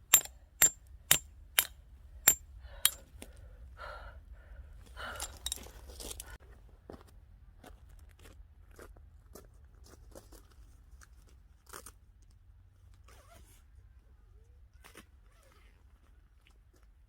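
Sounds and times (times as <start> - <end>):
handling clicks and rustles: 5.0 - 6.4.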